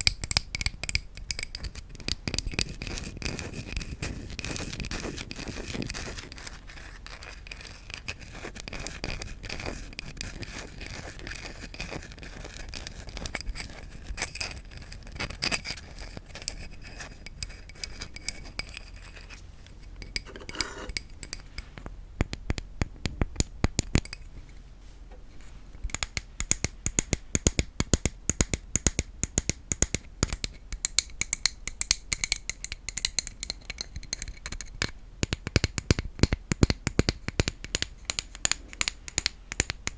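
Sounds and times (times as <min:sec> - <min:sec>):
scratching on wood: 0:20.1 - 0:21.0.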